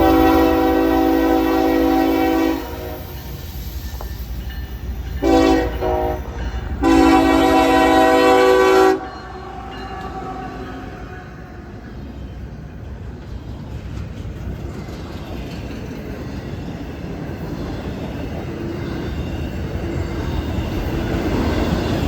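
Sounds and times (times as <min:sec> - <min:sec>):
locomotive air horn blasts: 0:00.0 - 0:03.2, 0:05.2 - 0:09.2
low rumble of passing train: 0:00.0 - 0:22.0.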